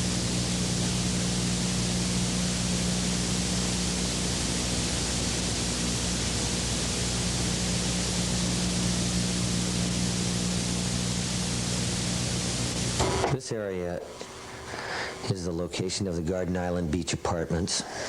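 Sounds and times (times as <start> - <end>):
low even hum: 0.0 - 17.0
steady hiss: 0.0 - 18.0.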